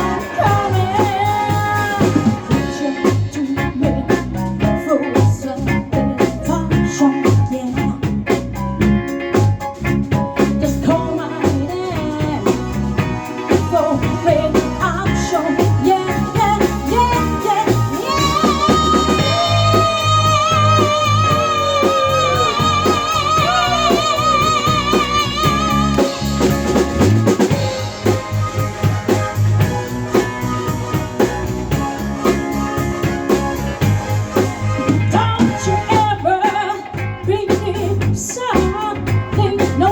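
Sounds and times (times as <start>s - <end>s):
live band playing: 0.0s - 39.9s.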